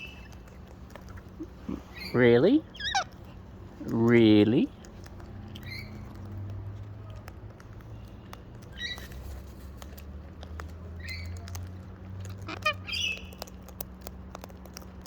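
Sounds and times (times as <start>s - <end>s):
parrots cracking seed: 0.0s - 2.1s, 2.7s - 15.0s
parrot calls: 1.6s - 3.2s, 12.3s - 13.4s.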